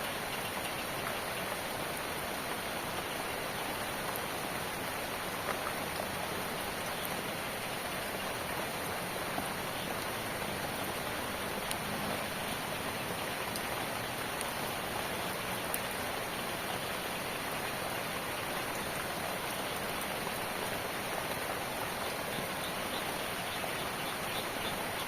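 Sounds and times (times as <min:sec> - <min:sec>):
steady rain hiss: 0:00.0 - 0:25.0.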